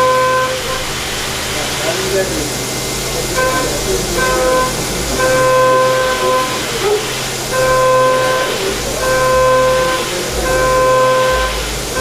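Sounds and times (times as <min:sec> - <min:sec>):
cutter whining tone: 0:00.0 - 0:12.0
machine hum and hiss: 0:00.0 - 0:12.0.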